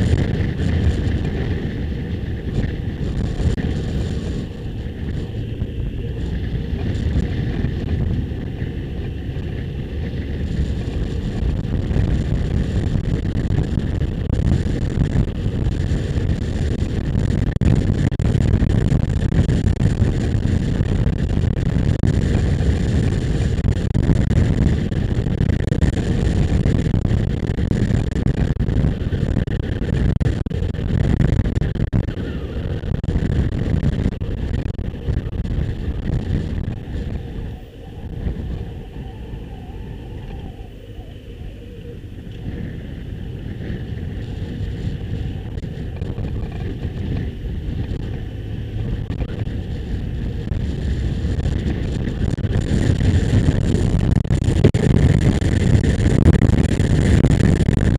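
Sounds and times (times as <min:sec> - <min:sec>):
motorcycle engine running: 0:00.0 - 0:57.9
wind rush over microphone: 0:00.0 - 0:57.9.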